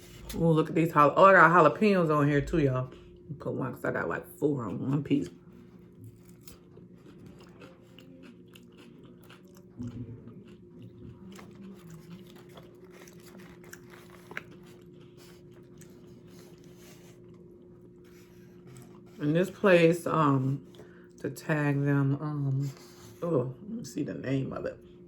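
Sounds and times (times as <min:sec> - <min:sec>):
faint steady hum: 0:00.0 - 0:25.0
chewing and crunching chips: 0:04.7 - 0:19.6.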